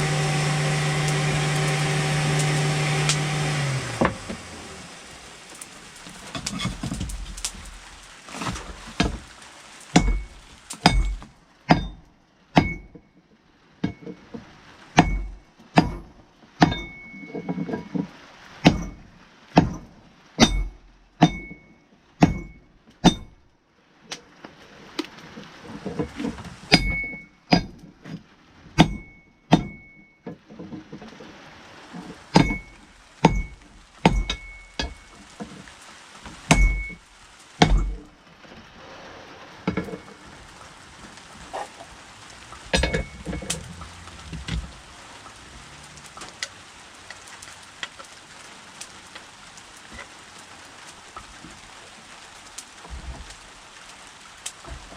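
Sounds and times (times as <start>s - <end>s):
hammer striking steel on anvil: 12.6s - 12.9s, 20.4s - 21.6s, 26.7s - 27.8s, 28.8s - 29.9s.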